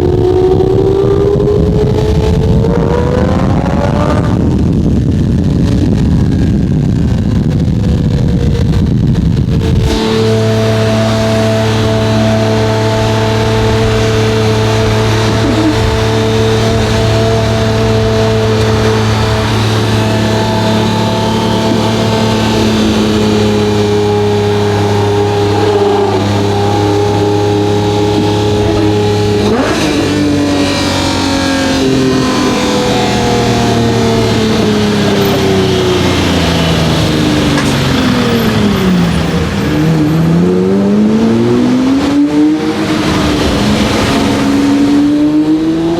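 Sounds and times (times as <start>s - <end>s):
car engine rumbling and revving: 0.0s - 45.9s.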